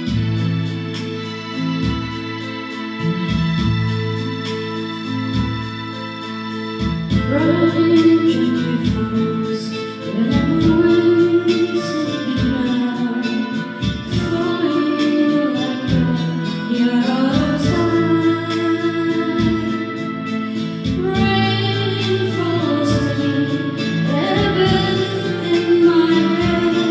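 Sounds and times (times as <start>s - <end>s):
karaoke backing track: 0.0s - 26.9s
woman singing: 7.1s - 26.9s.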